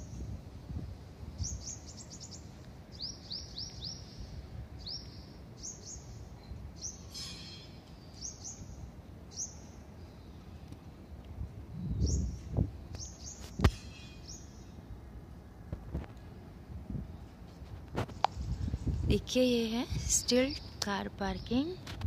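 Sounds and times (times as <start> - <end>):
small birds chirping: 1.4 - 14.8, 18.2 - 21.8.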